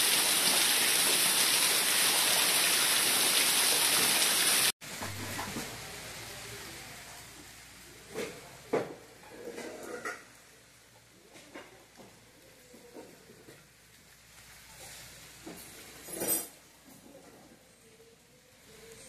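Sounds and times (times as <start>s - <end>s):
heavy rain: 0.0s - 8.6s.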